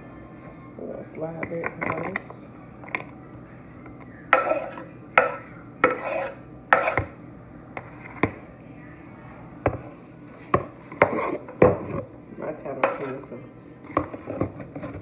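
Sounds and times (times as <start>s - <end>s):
knife scraping on cutting board: 4.4s - 7.1s, 11.0s - 11.5s.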